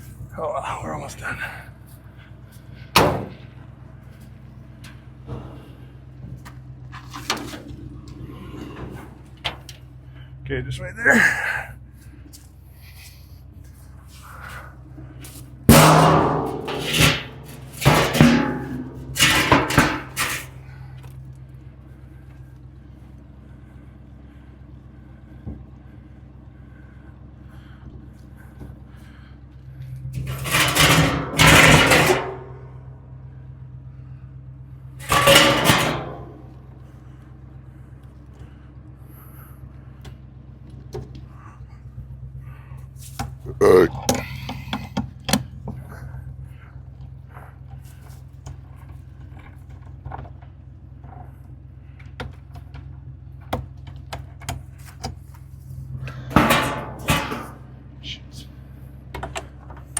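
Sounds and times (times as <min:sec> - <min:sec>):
truck engine idling: 0:00.0 - 0:59.9
loud clatter: 0:15.2 - 0:20.9, 0:30.1 - 0:32.9, 0:35.0 - 0:36.8, 0:56.0 - 0:57.7.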